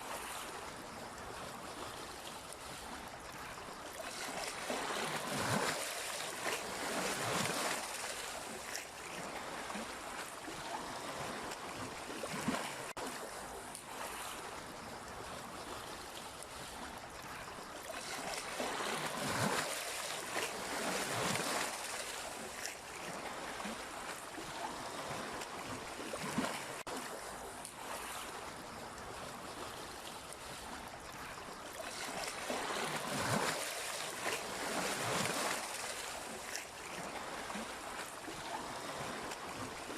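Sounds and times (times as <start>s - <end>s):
sea waves washing: 16.8s - 39.9s.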